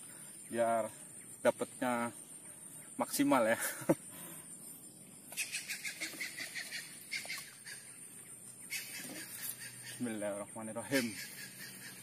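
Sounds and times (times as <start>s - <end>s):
birds chirping faintly: 0.0s - 12.0s.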